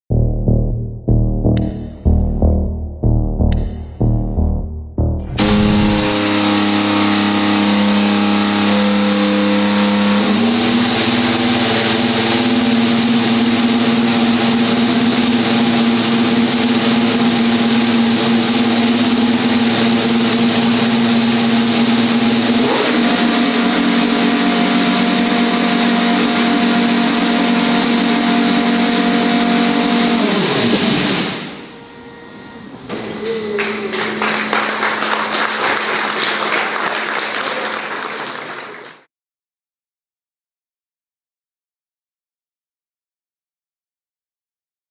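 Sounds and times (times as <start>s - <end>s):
racing car engine revving: 0.7s - 31.8s.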